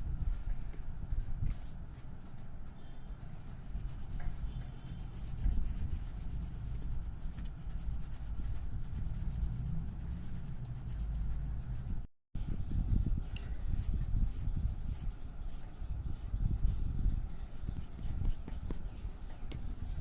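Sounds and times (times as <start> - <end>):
colouring strokes on paper: 3.6 - 12.1.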